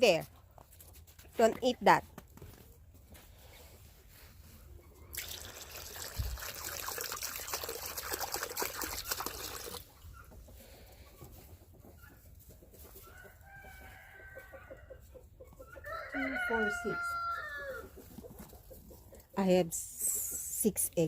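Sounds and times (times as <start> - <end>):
water pouring and splashing: 5.1 - 10.0
chickens clucking: 9.8 - 20.5
rooster crowing: 13.4 - 14.9, 15.8 - 17.8.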